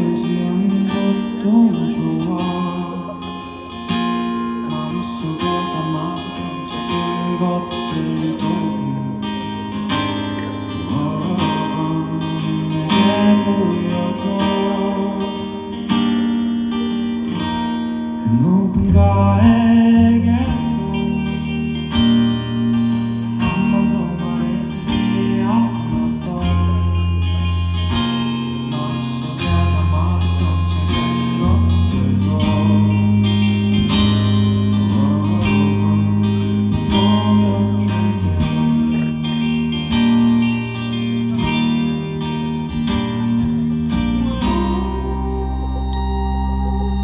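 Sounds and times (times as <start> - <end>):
guitar: 0.0 - 47.0
bass line: 18.2 - 47.0.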